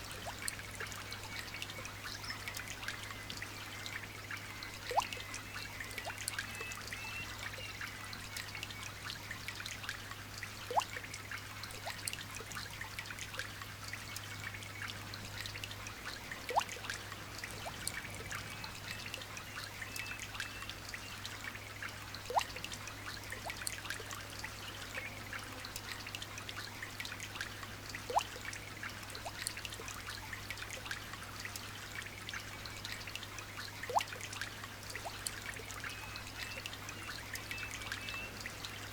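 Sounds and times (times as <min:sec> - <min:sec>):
light rain dripping: 0:00.0 - 0:38.9
faint bird chirps: 0:04.6 - 0:07.8, 0:35.8 - 0:38.5.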